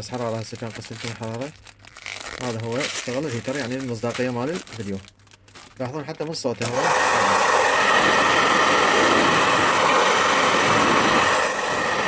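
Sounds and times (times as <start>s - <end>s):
hair dryer running: 6.6s - 12.0s.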